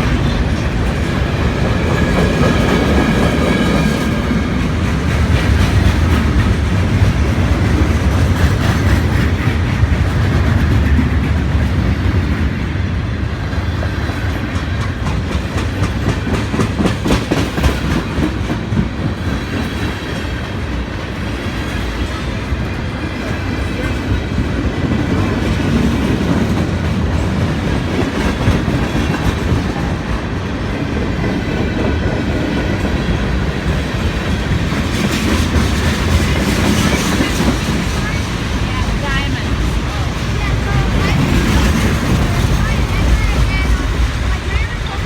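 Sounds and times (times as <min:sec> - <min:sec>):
freight train rumbling past: 0:00.0 - 0:45.0
wheels clacking over rail joints: 0:13.8 - 0:45.0.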